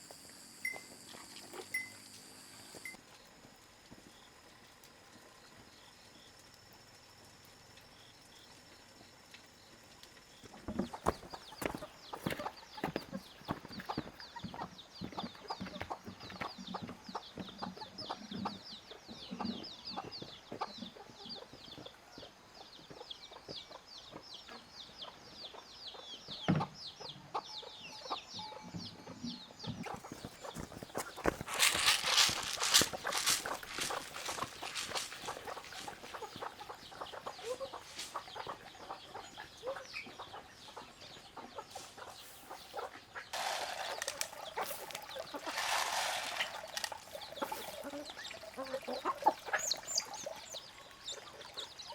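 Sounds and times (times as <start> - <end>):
chickens clucking: 10.5 - 51.9
chicks cheeping: 10.9 - 43.3, 44.4 - 51.9.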